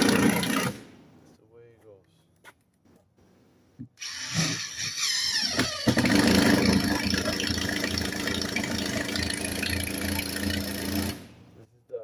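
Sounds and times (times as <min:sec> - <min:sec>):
engine starting and humming: 0:04.0 - 0:11.4.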